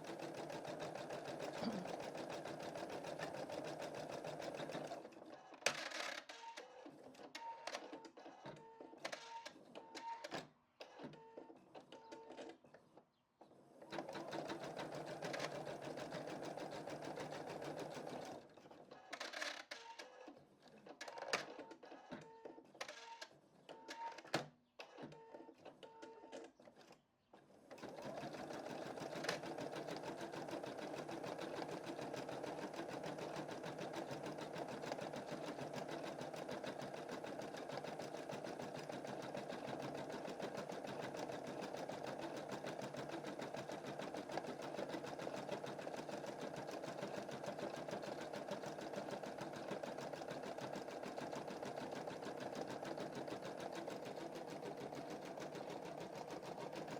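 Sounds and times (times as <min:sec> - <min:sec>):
embroidery machine stitching: 0:00.0 - 0:05.0, 0:13.9 - 0:18.4, 0:27.7 - 0:56.9.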